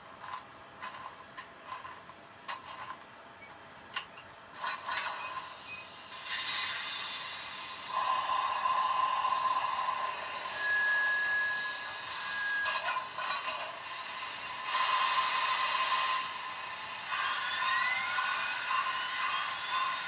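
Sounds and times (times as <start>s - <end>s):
model train running: 0.0s - 3.0s, 4.0s - 20.0s
brief steady tone: 10.4s - 13.0s.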